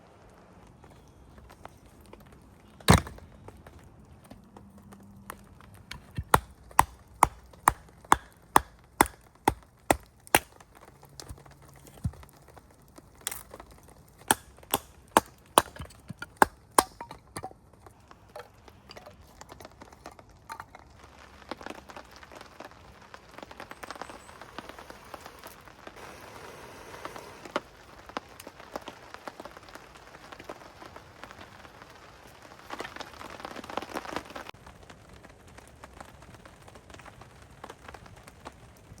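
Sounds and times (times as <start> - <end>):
rain pattering: 0.0 - 15.6, 17.6 - 39.0
sharp cracks: 5.8 - 12.0, 13.2 - 17.1.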